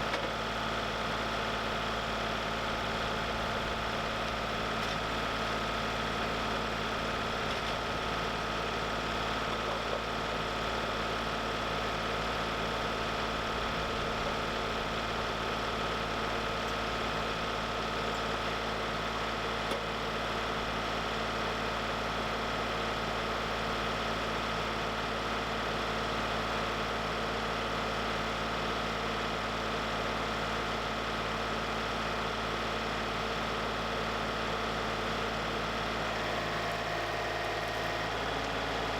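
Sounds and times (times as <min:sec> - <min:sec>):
sawmill engine running: 0:00.0 - 0:23.6, 0:33.4 - 0:38.9.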